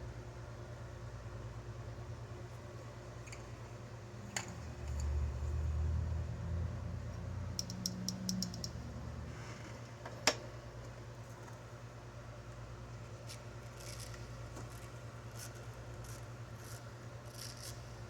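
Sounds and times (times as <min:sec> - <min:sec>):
small handling clicks and taps: 0:07.6 - 0:08.8.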